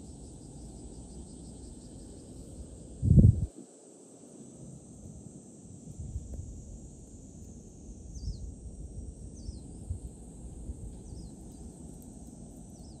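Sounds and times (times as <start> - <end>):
steady high hiss: 0.0 - 13.0
wind buffeting microphone: 3.0 - 3.5.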